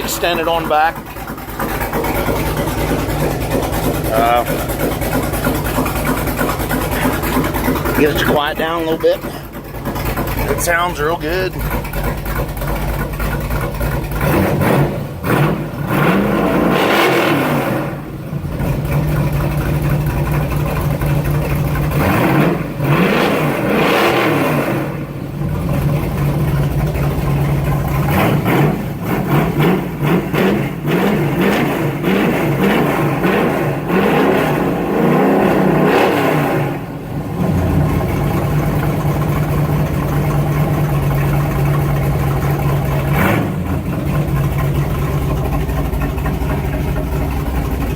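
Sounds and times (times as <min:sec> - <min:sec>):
car engine revving and idling: 0:00.0 - 0:47.9.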